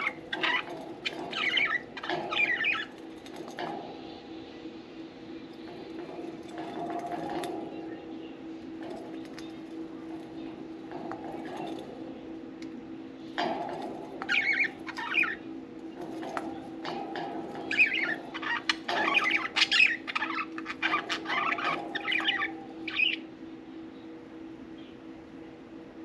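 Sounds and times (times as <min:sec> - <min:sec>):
budgerigars chattering and chirping: 0:00.0 - 0:02.9, 0:13.4 - 0:15.4, 0:16.1 - 0:23.2.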